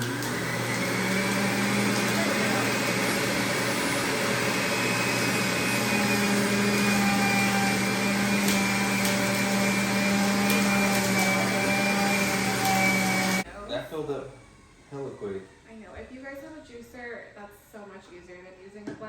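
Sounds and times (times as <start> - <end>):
electric juicer motor running: 0.0 - 13.5.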